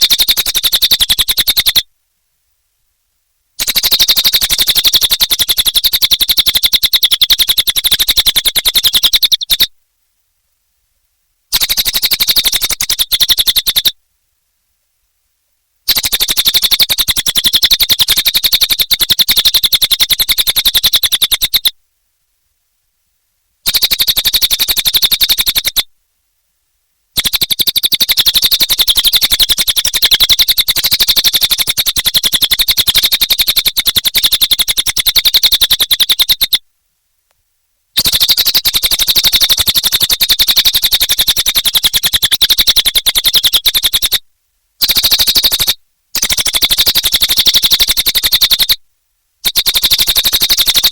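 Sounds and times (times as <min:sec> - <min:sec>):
songbird chattering trill: 0:00.0 - 0:01.8, 0:03.6 - 0:09.7, 0:11.5 - 0:14.0, 0:15.9 - 0:21.8, 0:23.6 - 0:25.9, 0:27.2 - 0:36.6, 0:38.0 - 0:44.2, 0:44.8 - 0:48.8, 0:49.4 - 0:50.9.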